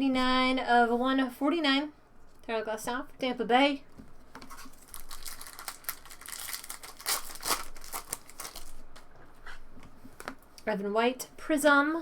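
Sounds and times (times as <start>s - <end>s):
cards rustling: 4.4s - 9.1s
wrapper crinkling and tearing: 4.5s - 9.0s.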